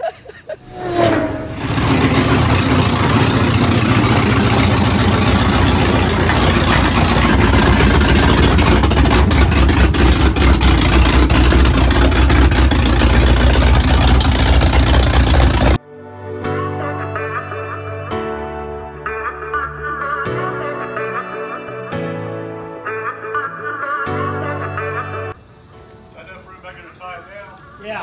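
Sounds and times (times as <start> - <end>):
car engine idling: 0.6 - 15.8.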